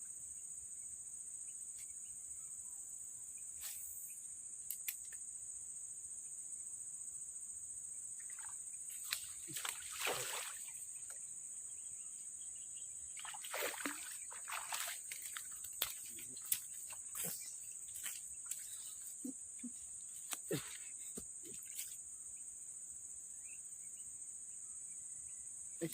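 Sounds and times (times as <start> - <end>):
insects chirping: 0.0 - 25.9
water splashing: 8.2 - 10.8, 13.2 - 17.2.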